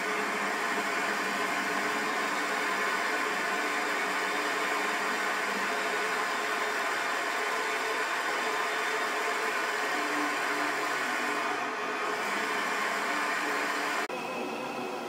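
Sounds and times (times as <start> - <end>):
hot-air engine whirring: 0.0 - 15.0.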